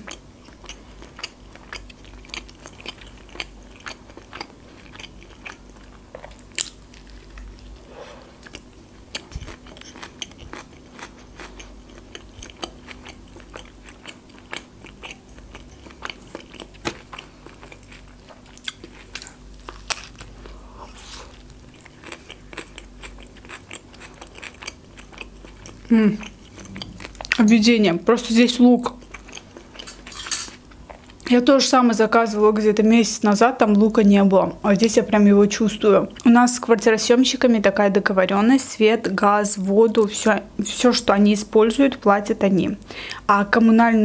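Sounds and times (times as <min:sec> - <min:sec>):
chewing with small crunches: 0:00.0 - 0:27.6, 0:28.8 - 0:31.3.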